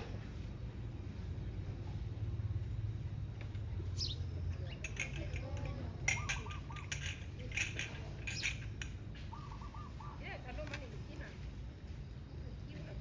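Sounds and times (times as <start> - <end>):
sparrows chirping: 3.6 - 11.1.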